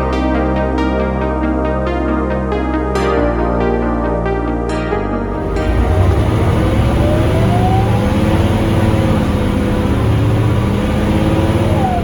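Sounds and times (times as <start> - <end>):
bus diesel engine accelerating: 5.3 - 12.0
driveline whine: 5.3 - 12.0.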